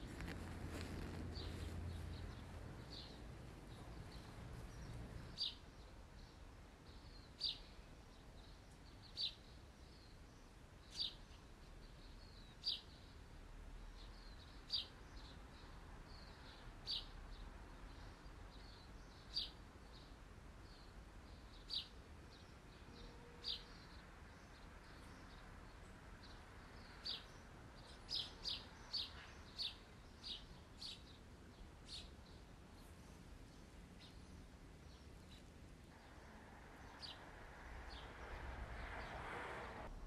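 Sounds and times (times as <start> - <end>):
bird chirping: 0.0 - 13.3, 14.0 - 39.3
faint hiss: 35.1 - 40.0.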